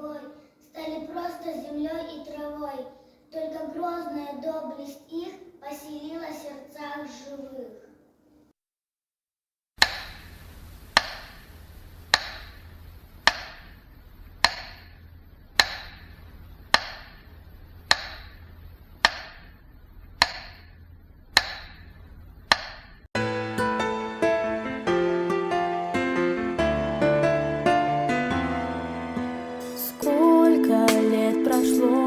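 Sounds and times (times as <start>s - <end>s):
faint steady hum: 9.9s - 23.1s
metronome ticking: 14.4s - 14.8s, 15.6s - 16.0s, 17.9s - 18.3s, 20.2s - 20.6s, 21.4s - 21.8s.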